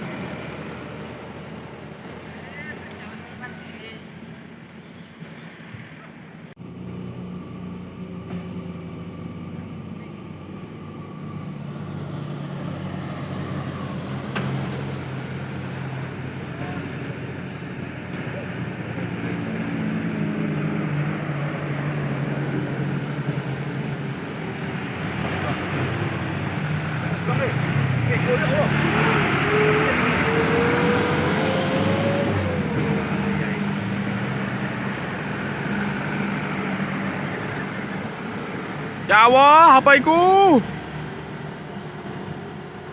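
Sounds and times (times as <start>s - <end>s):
truck engine running: 0.0s - 42.9s.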